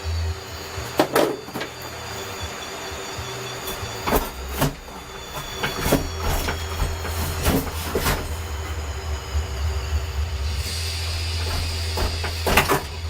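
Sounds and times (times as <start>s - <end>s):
steady low hum: 0.0s - 13.0s
metal clanking and knocking: 0.8s - 2.1s, 3.6s - 8.9s, 10.6s - 13.0s.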